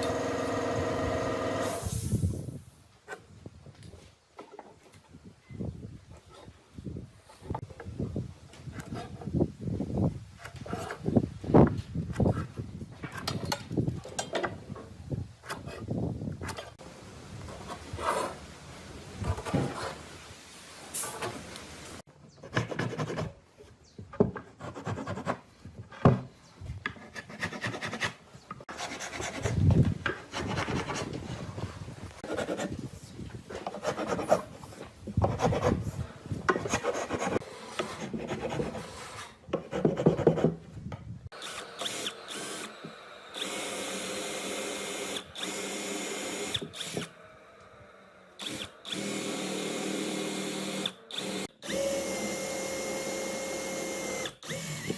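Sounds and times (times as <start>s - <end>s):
power tool running: 0.0s - 2.2s, 41.4s - 47.3s, 48.4s - 54.9s.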